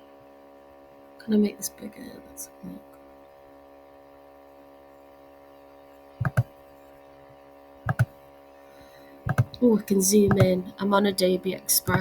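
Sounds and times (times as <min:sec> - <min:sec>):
electrical mains hum: 0:00.0 - 0:12.0
computer mouse clicks: 0:06.2 - 0:06.5, 0:07.9 - 0:08.1, 0:09.3 - 0:09.6, 0:10.2 - 0:10.6.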